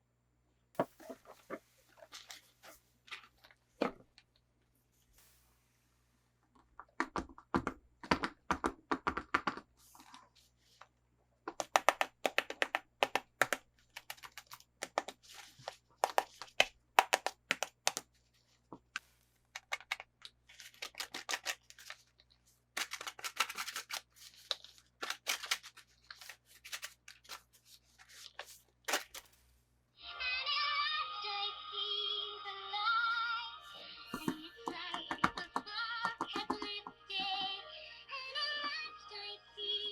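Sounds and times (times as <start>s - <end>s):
toy packaging being opened: 1.9s - 3.6s, 19.5s - 29.4s
music with high sung melody: 30.0s - 39.9s.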